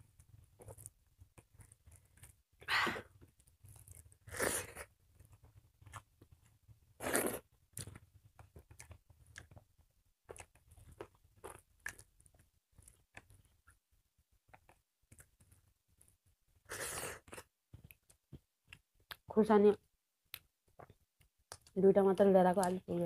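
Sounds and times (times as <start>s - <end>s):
chewing and crunching food: 0.1s - 2.5s, 3.1s - 13.8s, 14.4s - 19.3s.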